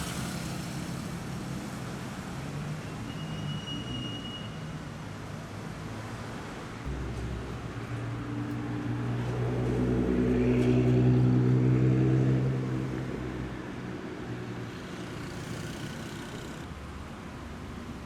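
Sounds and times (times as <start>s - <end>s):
car engine passing by: 0.0s - 1.8s, 6.9s - 16.7s.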